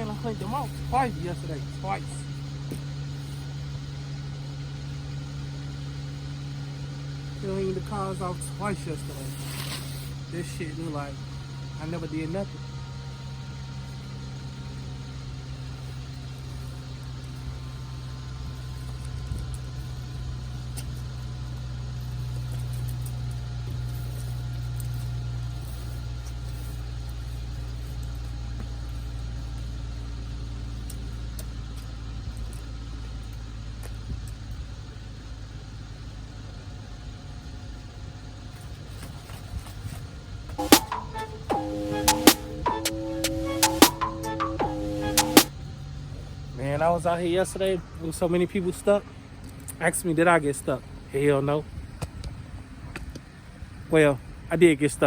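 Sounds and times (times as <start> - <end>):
engine idling: 0.0 - 40.0.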